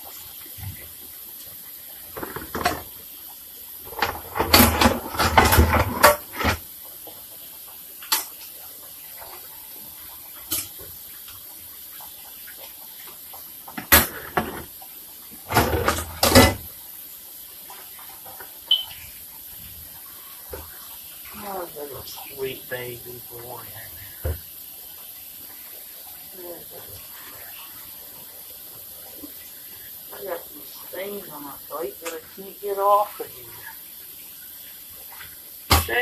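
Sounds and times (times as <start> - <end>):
tap water running: 0.0 - 36.0
dishes clattering: 2.2 - 2.9.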